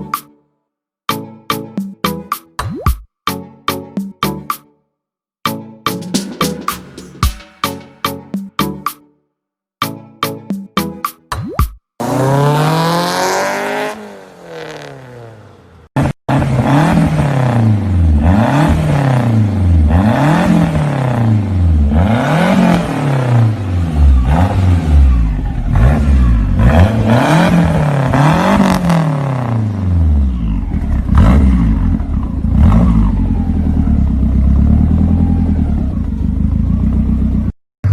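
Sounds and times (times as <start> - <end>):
car engine revving: 16.3 - 30.1.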